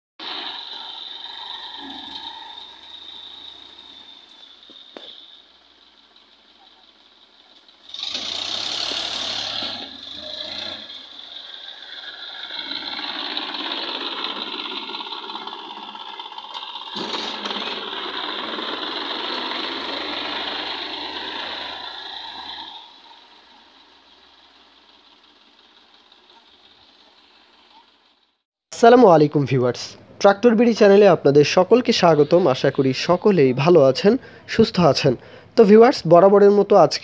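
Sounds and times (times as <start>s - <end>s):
tractor diesel engine rattling: 0.2s - 28.4s, 29.5s - 37.0s.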